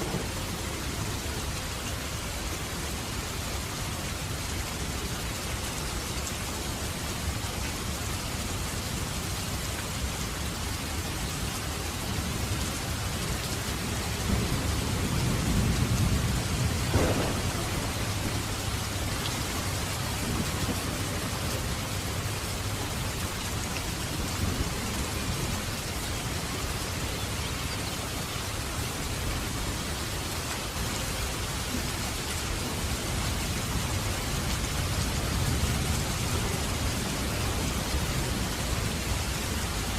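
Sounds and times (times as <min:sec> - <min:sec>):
thunder rumble and crack: 0:00.0 - 0:01.3, 0:14.0 - 0:23.3
heavy rain falling: 0:00.0 - 0:39.9.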